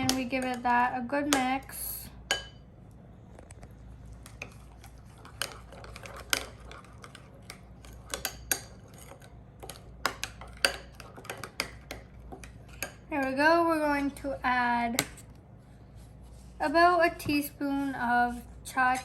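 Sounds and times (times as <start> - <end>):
spoon stirring in a bowl: 2.2 - 2.6, 3.3 - 14.4.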